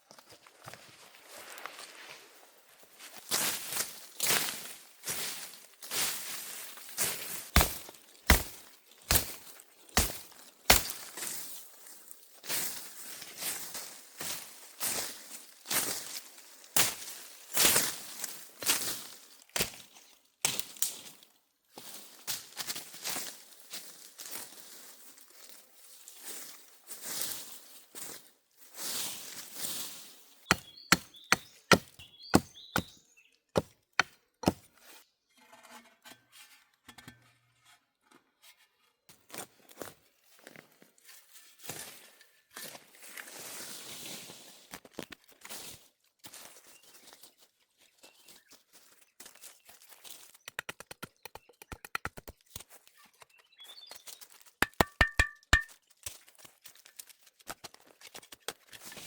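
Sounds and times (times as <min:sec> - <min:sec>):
hand tool chopping: 0:07.6 - 0:09.4, 0:10.0 - 0:11.1, 0:30.5 - 0:33.0, 0:33.6 - 0:34.7, 0:50.5 - 0:52.3, 0:54.6 - 0:55.7.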